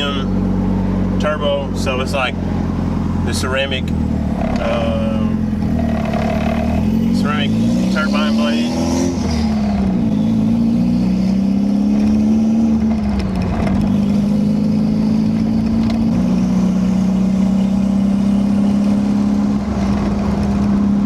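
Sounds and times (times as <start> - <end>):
loud car engine driving: 0.0 - 21.0.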